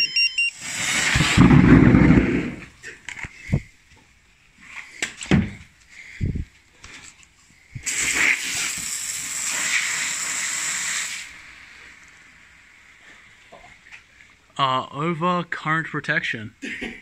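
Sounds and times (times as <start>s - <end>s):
battery venting gas hiss: 0.5s - 1.5s, 7.5s - 14.4s.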